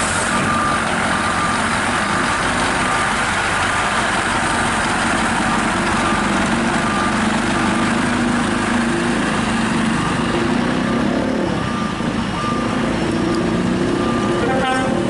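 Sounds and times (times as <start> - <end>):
truck diesel engine idling: 0.0 - 15.0
faint reversing beeper: 9.8 - 15.0.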